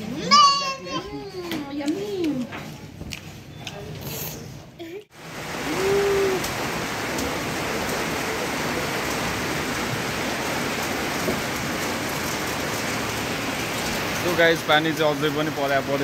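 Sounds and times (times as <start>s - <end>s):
steady rain hissing: 5.1s - 16.0s.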